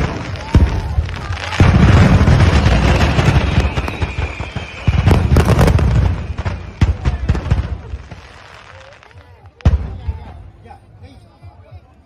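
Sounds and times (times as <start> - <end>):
fireworks barrage of bangs: 0.0 - 9.0.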